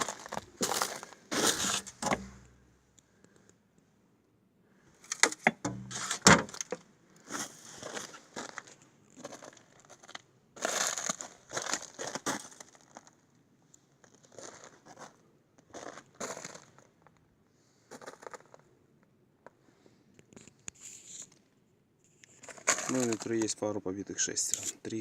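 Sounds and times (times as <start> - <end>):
crunching and rustling: 0.0 - 3.4, 5.0 - 13.3, 14.0 - 17.2, 22.1 - 23.6.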